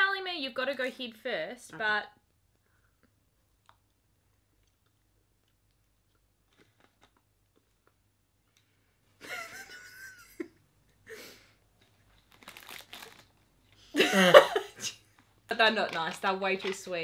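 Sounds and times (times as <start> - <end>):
chewing with mouth clicks: 2.9 - 8.7
plastic packaging crinkle: 11.9 - 13.8.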